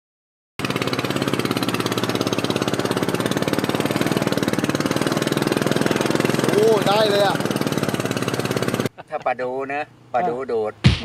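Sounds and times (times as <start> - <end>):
boat engine chugging: 0.6 - 8.9.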